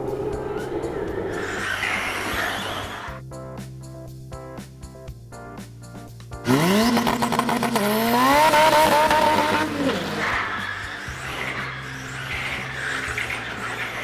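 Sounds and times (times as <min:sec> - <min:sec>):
background music: 0:00.0 - 0:14.0
car engine revving hard: 0:06.4 - 0:14.0.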